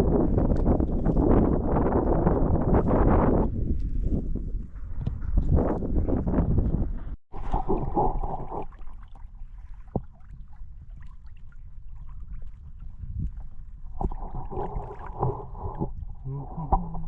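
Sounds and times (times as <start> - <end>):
wind rumbling on microphone: 0.0 - 17.0
water sloshing around kayak: 7.3 - 17.0.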